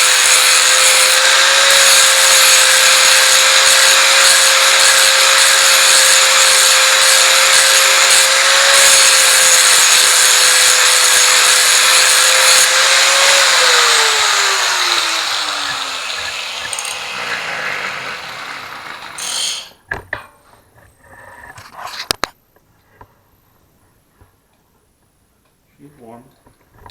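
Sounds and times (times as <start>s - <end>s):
angle grinder grinding metal: 0.0s - 19.8s
grinder disc spinning down: 0.0s - 19.8s.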